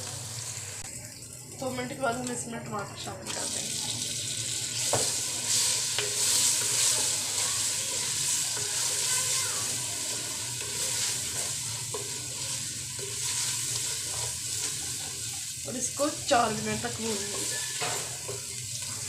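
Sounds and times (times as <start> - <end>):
vegetables sizzling in oil: 0.0 - 19.0
wooden spoon stirring and scraping: 4.7 - 19.0.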